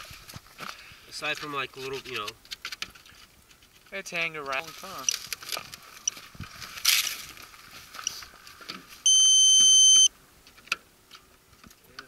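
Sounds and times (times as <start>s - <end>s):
rustle: 0.0s - 12.0s
electronic beep: 9.1s - 10.1s.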